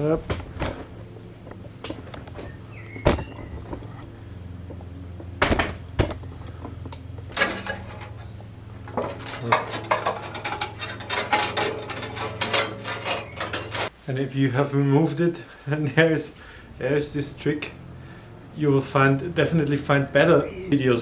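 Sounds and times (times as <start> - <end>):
steady low hum: 3.4 - 13.9
metal knocking and clattering: 7.3 - 13.9.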